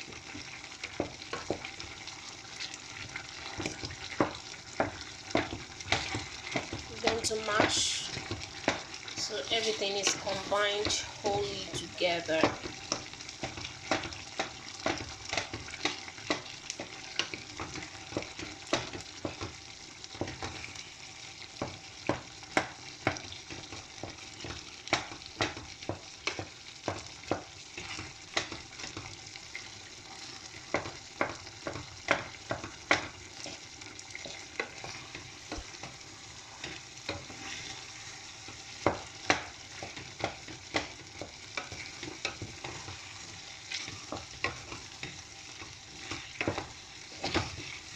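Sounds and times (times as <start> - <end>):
pot cooking on gas: 0.0 - 47.9
spoon mashing food in pot: 0.1 - 47.9.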